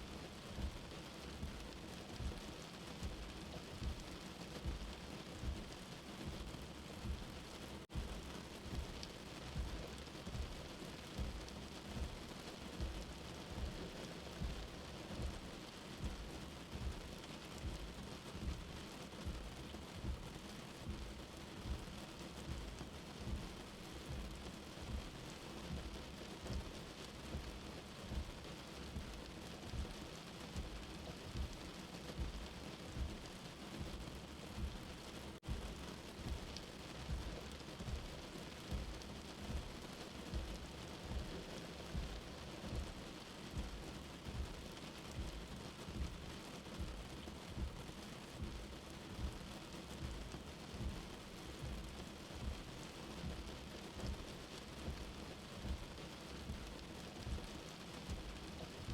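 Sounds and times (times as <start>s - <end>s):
soft heartbeat thumping: 0.0s - 58.9s
steady rain heard indoors: 0.0s - 58.9s.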